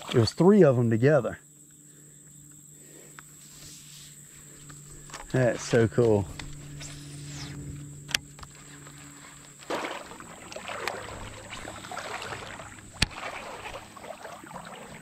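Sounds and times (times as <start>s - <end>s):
splashing in shallow water: 8.5s - 15.0s.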